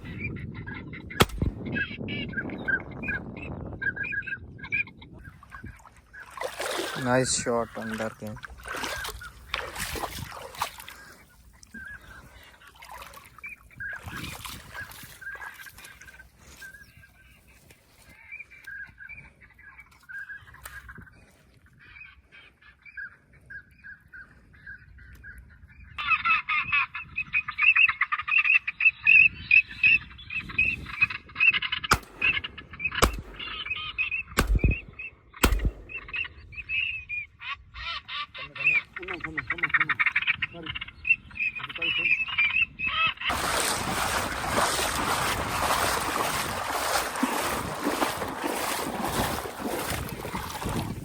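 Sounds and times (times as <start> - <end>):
sharp bangs: 1.2 - 1.6, 31.9 - 36.4
ducks quacking: 30.8 - 50.9.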